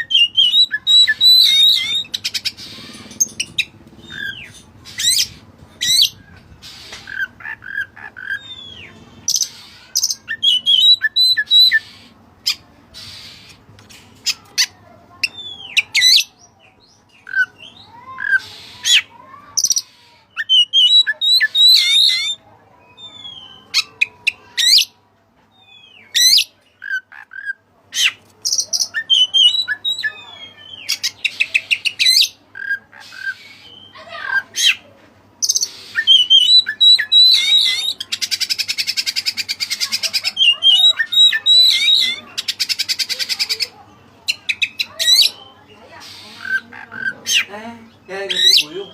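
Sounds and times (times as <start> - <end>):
bird singing whistles and trills: 0.0 - 2.5, 8.4 - 11.9, 20.4 - 23.8, 35.4 - 39.1.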